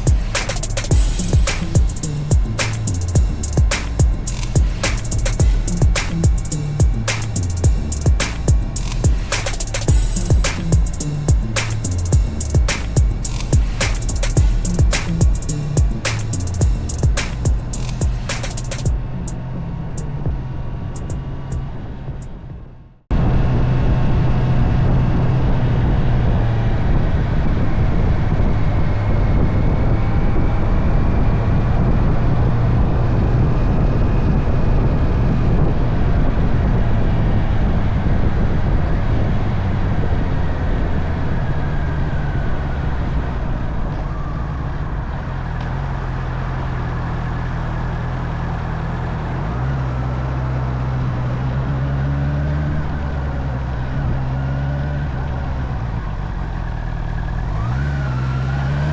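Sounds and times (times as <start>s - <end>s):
motorcycle engine running: 0.0s - 22.7s.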